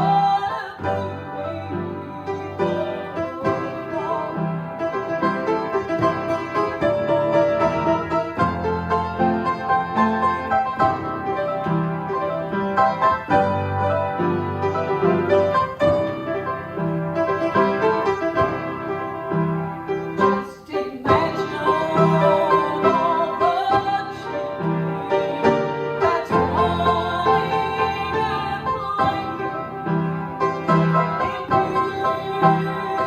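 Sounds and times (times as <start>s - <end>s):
piano music: 0.0s - 33.0s
singing voice with vibrato: 20.4s - 29.6s.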